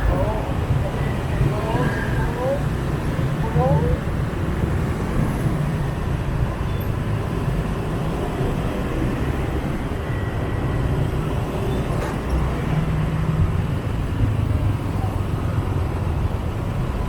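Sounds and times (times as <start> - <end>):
motorbike traffic rumble: 0.0 - 17.0
road noise: 0.0 - 17.0.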